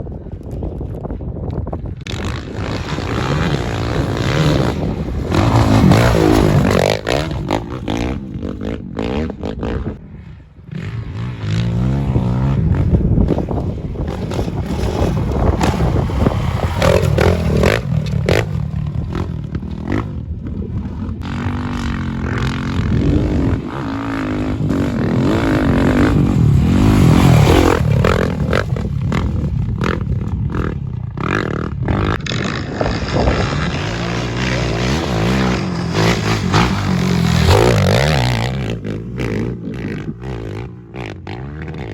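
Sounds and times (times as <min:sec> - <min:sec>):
motorcycle engines revving: 0:01.9 - 0:41.9.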